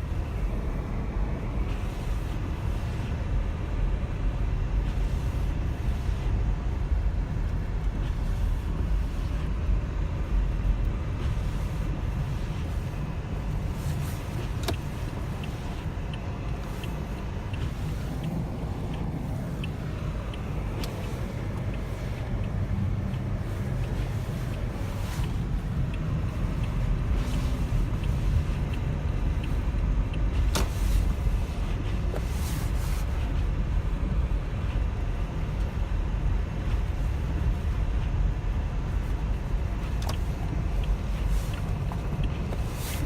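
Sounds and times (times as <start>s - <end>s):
faint ticks: 13.9s - 31.2s, 39.4s - 42.8s.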